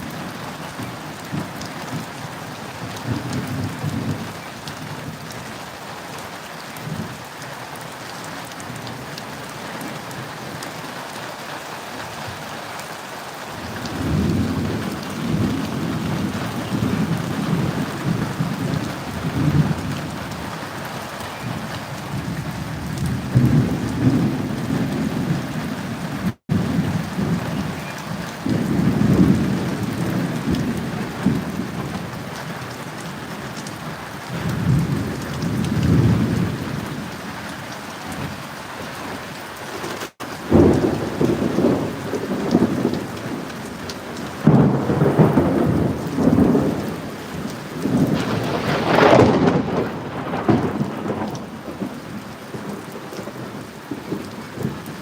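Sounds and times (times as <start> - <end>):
steady rain: 0.0 - 55.0
rolling thunder: 13.7 - 20.5, 21.4 - 25.7, 26.3 - 32.2, 40.4 - 55.0.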